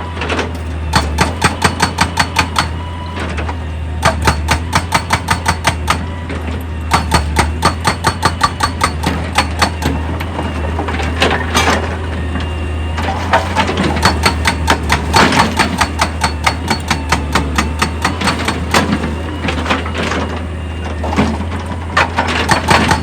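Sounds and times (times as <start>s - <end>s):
heavy machine engine running: 0.0s - 23.0s.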